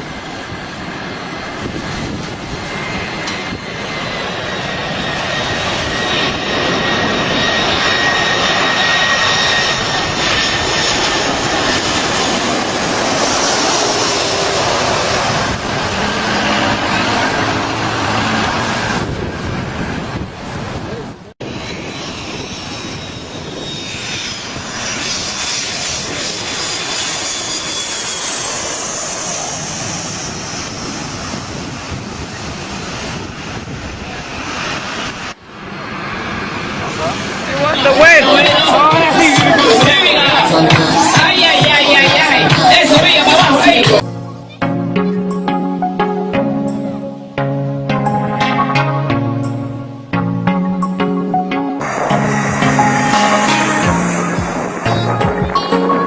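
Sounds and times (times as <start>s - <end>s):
jet engines roaring: 0.0s - 56.0s
thin high whine: 21.4s - 30.8s, 36.8s - 45.7s, 48.0s - 56.0s.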